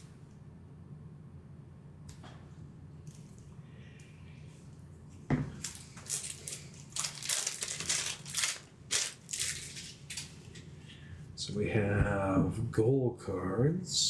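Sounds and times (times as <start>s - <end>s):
shrink wrap ripping and crackling: 5.6s - 10.6s.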